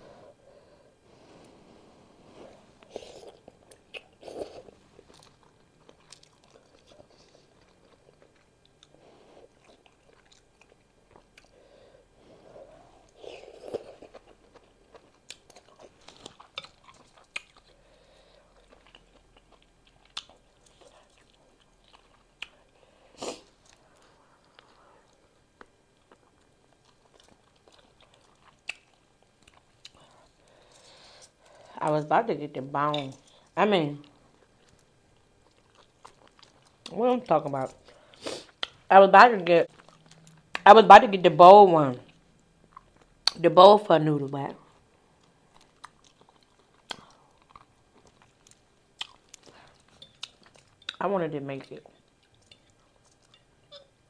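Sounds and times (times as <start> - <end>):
chewing noodles and beef: 2.8 - 11.6, 13.0 - 30.7, 33.3 - 38.9, 39.7 - 40.6, 44.6 - 51.0, 51.9 - 53.8.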